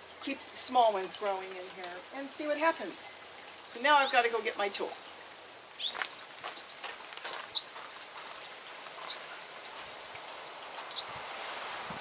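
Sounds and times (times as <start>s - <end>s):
faint outdoor hiss: 0.0s - 12.0s
small bird chirping: 5.8s - 6.9s, 7.5s - 10.0s, 10.8s - 11.2s.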